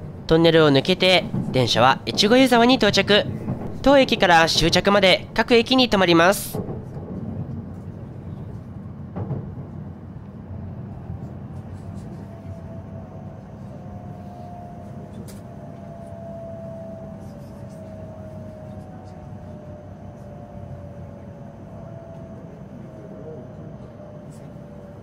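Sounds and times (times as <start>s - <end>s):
train running rumble: 0.0s - 25.0s
faint high whine: 10.5s - 25.0s.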